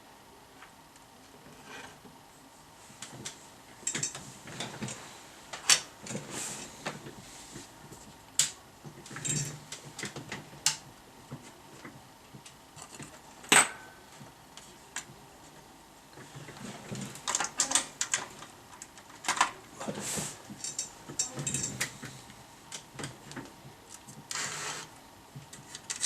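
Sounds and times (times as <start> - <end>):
tools clicking and scraping: 20.6 - 21.9.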